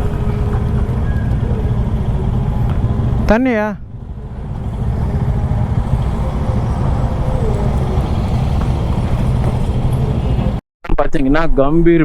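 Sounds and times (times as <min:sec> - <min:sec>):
motorcycle engine rumble: 0:00.0 - 0:10.6.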